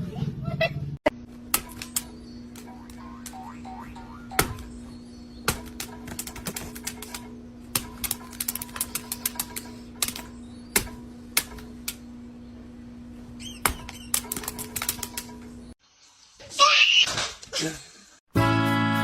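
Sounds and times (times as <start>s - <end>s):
steady hum: 1.0s - 15.8s
sharp clicks and taps: 5.5s - 12.0s.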